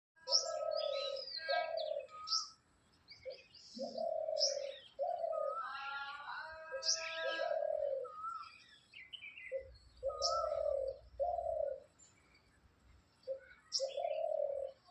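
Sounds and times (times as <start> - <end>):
dove cooing: 0.2 - 2.5, 3.2 - 8.6, 9.4 - 12.0, 13.2 - 14.9
small birds chirping: 0.2 - 14.9.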